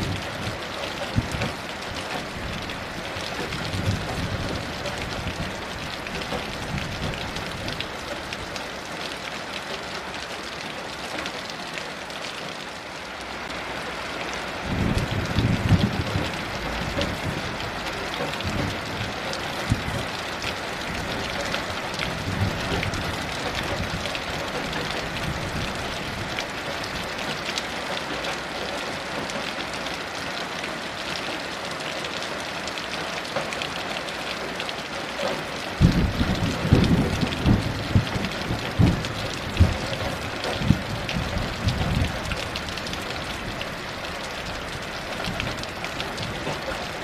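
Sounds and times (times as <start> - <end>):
distant thunder rumbling: 0.0 - 8.2, 14.7 - 20.2, 35.8 - 43.7
heavy rain: 0.0 - 47.0.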